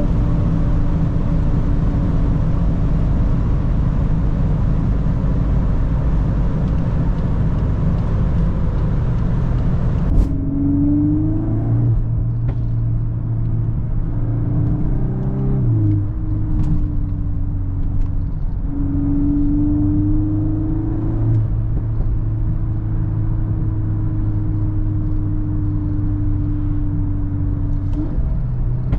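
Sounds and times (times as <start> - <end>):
car engine revving: 9.1 - 26.9.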